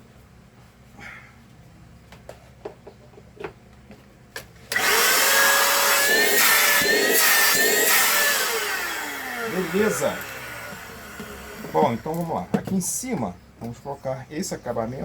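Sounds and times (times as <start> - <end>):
vacuum cleaner motor whining: 4.7 - 12.2.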